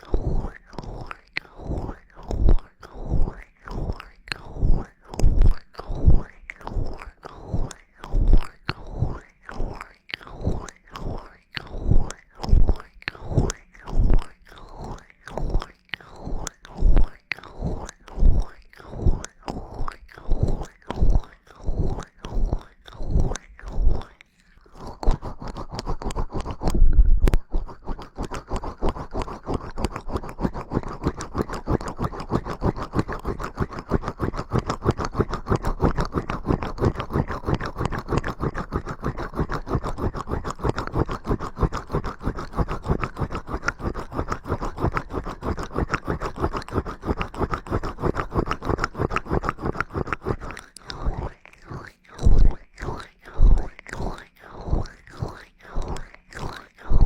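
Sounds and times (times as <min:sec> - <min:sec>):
tool scratching on microphone: 0:24.8 - 0:57.0.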